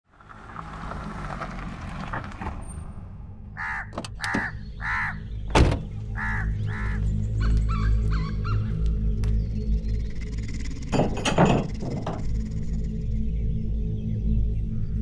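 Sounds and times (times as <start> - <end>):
harsh bird calls: 3.5 - 15.0
low steady drone: 4.6 - 15.0.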